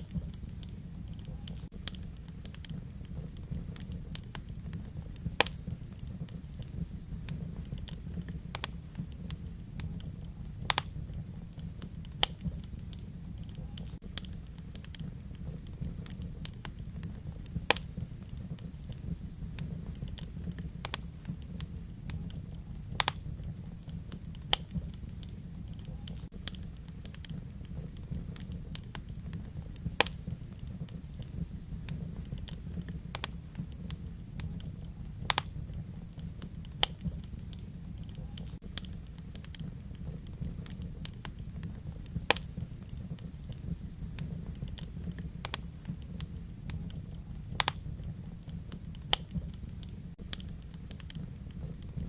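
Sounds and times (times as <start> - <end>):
wood fire crackling: 0.0 - 52.0.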